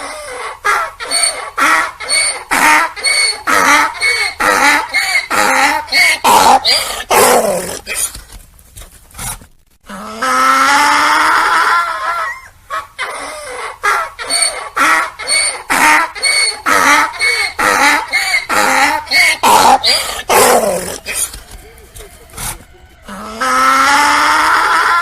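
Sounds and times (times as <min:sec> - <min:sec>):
donkey braying: 0:00.0 - 0:08.2, 0:09.9 - 0:25.0.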